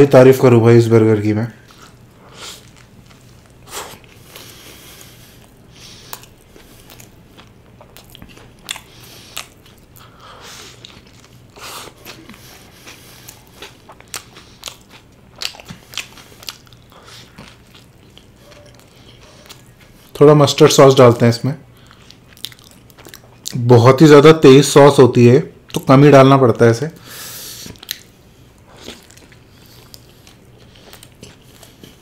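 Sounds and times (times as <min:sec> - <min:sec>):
person chewing burger: 0:01.6 - 0:20.2, 0:21.7 - 0:23.6, 0:27.1 - 0:32.0.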